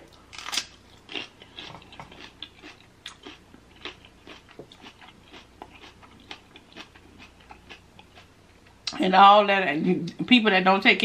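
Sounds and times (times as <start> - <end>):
chewing crunches: 0.1 - 8.8.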